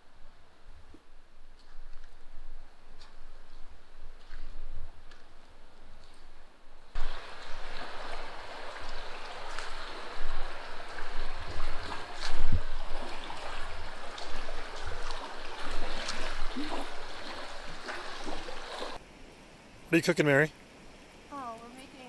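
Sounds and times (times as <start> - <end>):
running water: 7.0 - 19.0.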